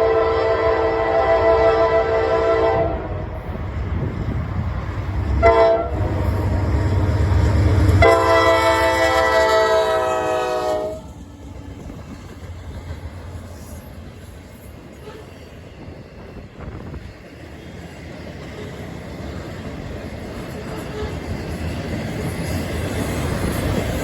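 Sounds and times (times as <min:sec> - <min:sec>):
locomotive horn blasts: 0:00.0 - 0:03.2, 0:05.4 - 0:06.7, 0:07.8 - 0:11.2
locomotive rumble: 0:00.0 - 0:24.0
train rolling: 0:00.0 - 0:24.0.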